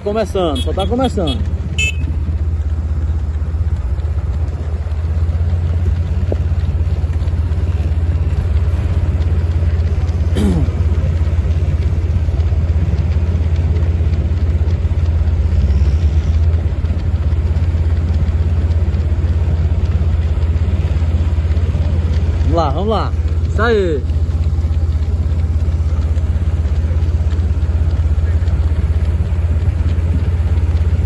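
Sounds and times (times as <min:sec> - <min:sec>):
vehicle rumbling at slow speed: 0:00.0 - 0:31.0.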